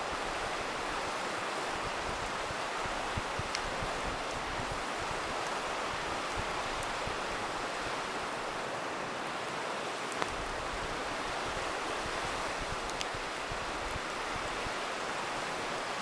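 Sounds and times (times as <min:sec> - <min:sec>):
campfire crackling: 0:00.0 - 0:16.0
river rushing: 0:00.0 - 0:16.0.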